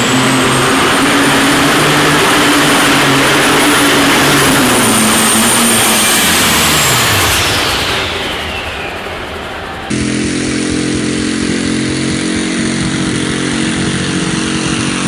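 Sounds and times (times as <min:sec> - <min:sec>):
steady high whistle: 0:00.0 - 0:10.8
tractor engine running under load: 0:00.0 - 0:15.0.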